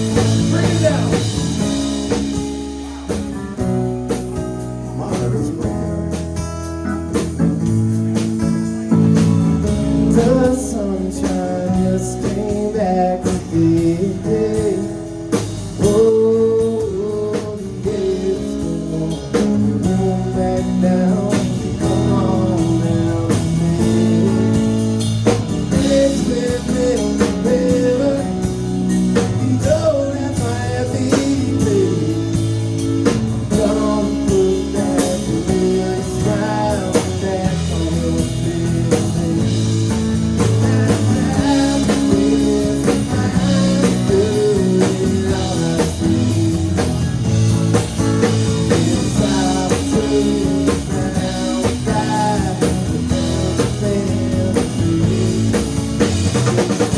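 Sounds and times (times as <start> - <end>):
drum beat: 0.0 - 10.7, 31.3 - 56.9
wavering guitar lead: 0.0 - 12.1
bass: 0.0 - 56.9.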